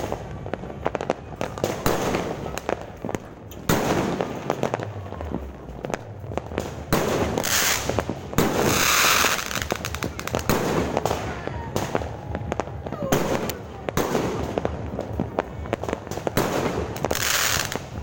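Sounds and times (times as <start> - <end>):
fireworks bangs and crackles: 0.0 - 18.0
fireworks hissing bursts: 6.0 - 15.0, 15.7 - 18.0.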